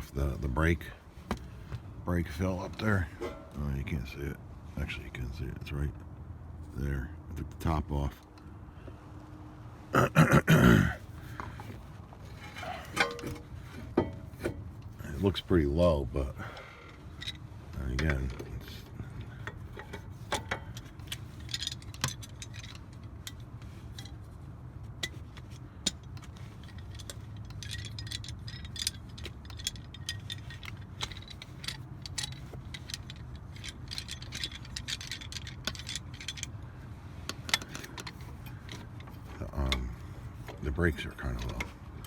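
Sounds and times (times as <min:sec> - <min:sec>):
steady low hum: 0:00.0 - 0:42.0
metal tools clinking: 0:02.2 - 0:04.2, 0:11.2 - 0:24.4, 0:25.0 - 0:42.0.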